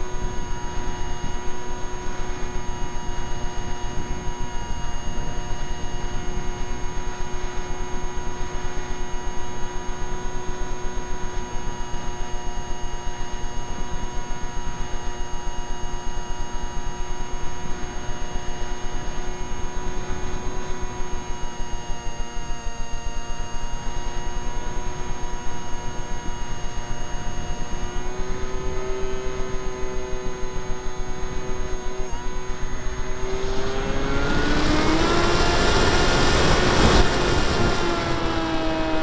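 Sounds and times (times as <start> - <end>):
electric motor whine: 0.0 - 39.0
rush of air noise: 26.3 - 39.0.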